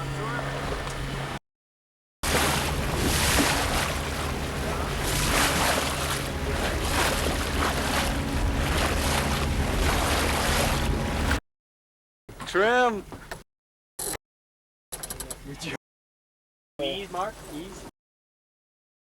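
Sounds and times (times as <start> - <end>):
low hum: 0.0 - 1.4, 2.2 - 11.4
water rushing past hull: 2.2 - 11.4
wind buffeting microphone: 2.4 - 11.4.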